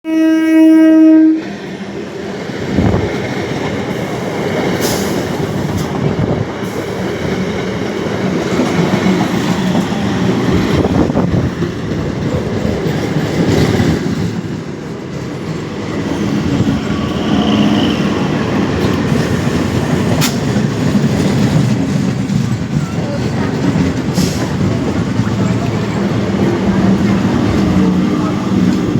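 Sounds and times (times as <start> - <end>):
train rumble: 0.1 - 28.9
train wheel clatter: 1.6 - 28.9.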